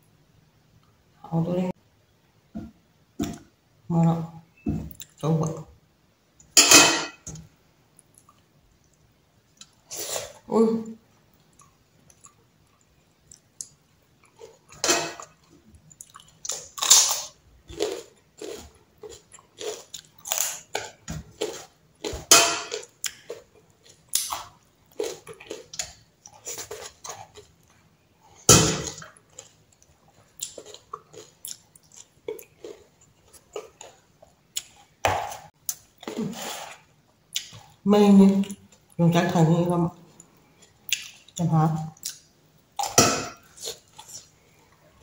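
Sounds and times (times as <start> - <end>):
person chewing food: 7.9 - 10.4, 11.2 - 37.8, 40.1 - 41.4, 42.0 - 45.0.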